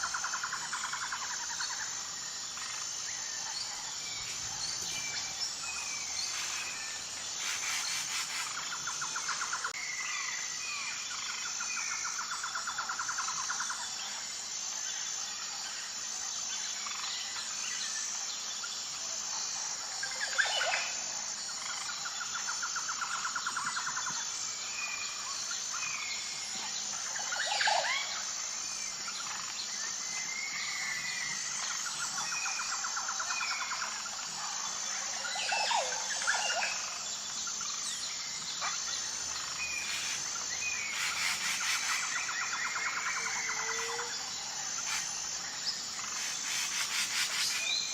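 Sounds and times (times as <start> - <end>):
pulsing insect chorus: 0.0 - 47.9
birds chirping and calling: 4.1 - 9.7
sharp sweeping bird calls: 4.2 - 9.7, 38.4 - 47.9.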